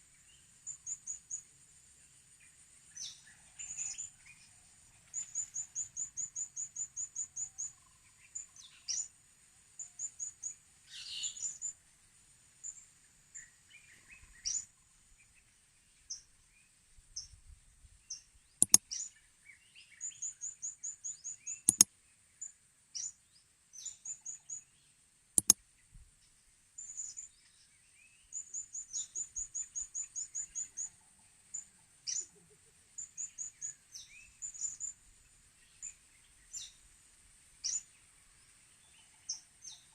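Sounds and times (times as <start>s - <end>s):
high insect hiss: 0.0s - 19.2s, 26.2s - 32.2s, 32.8s - 39.8s
sharp clicks: 18.6s - 18.8s, 21.7s - 21.9s, 25.4s - 25.6s.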